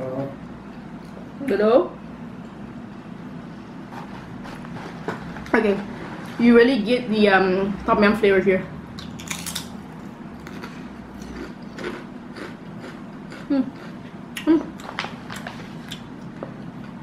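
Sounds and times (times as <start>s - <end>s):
person chewing potato chips: 9.0s - 17.0s.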